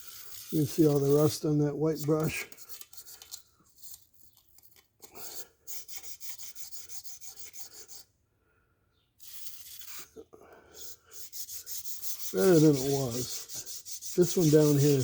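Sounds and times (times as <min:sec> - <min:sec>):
bristle brush scrubbing metal: 0:00.0 - 0:04.0, 0:09.2 - 0:10.1, 0:10.8 - 0:15.0.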